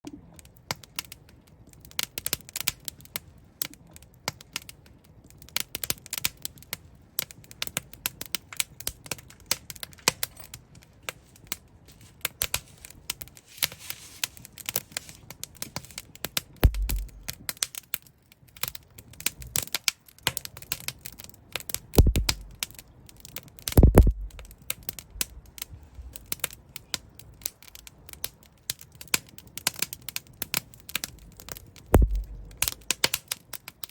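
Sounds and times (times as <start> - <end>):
wood fire crackling: 0.1 - 33.9
deeper thuds: 16.6 - 17.3, 22.0 - 22.6, 23.8 - 24.5, 32.0 - 32.8.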